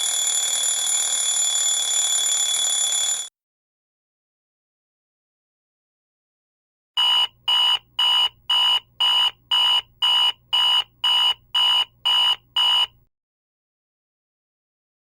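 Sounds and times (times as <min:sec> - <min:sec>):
alarm clock beeping: 0:00.0 - 0:03.3.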